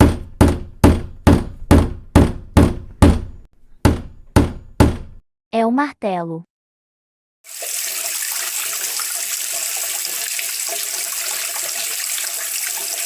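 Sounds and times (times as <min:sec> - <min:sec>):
water running from a tap: 0:07.5 - 0:13.0.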